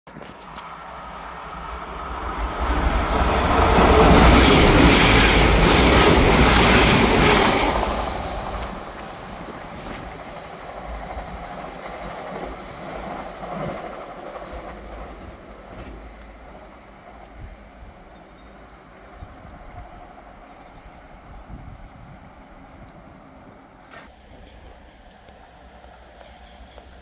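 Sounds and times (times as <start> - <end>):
diesel train passing at speed: 0.1 - 27.0
wheels clattering over rails: 2.6 - 16.1.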